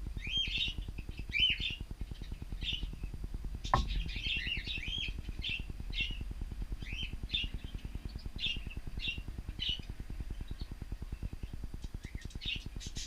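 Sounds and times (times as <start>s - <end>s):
low pulsing rumble: 0.0s - 13.0s.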